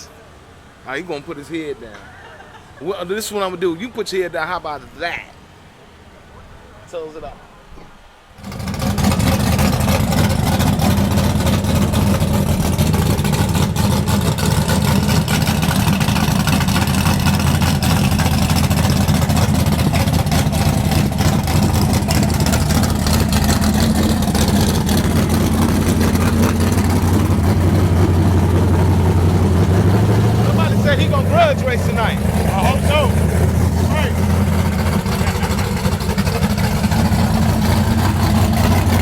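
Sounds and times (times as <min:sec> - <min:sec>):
race car engine running: 0:08.4 - 0:39.0.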